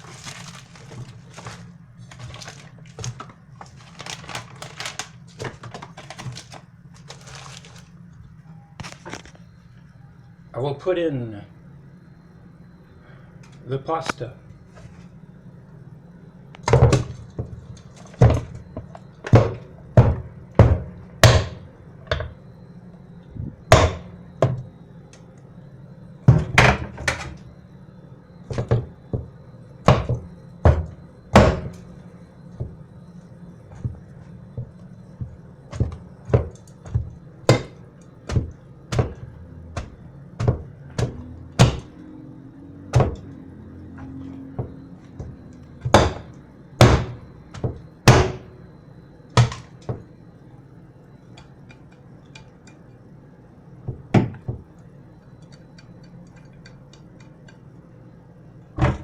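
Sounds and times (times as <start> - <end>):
pasta boxes thunking into dish: 45.8 - 48.4.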